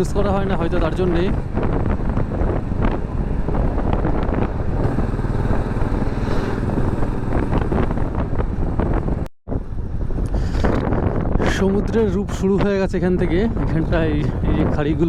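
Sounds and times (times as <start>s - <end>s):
wind rushing over microphone: 0.0s - 15.0s
motorcycle engine: 1.4s - 10.2s.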